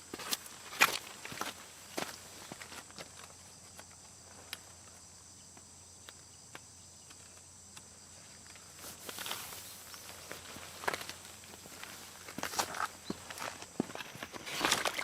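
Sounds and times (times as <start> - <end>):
crickets trilling: 0.0 - 15.0
rustling shuffle: 8.4 - 15.0.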